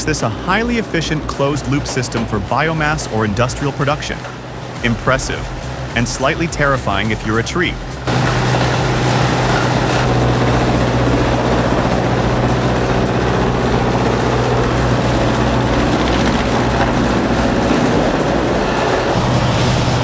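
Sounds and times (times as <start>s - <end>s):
shredding machine hum and grinding: 8.0s - 20.0s.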